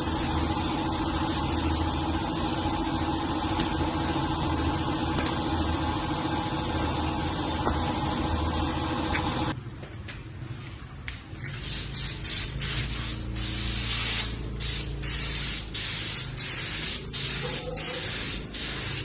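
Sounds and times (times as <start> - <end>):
motor running steadily: 0.0 - 9.6.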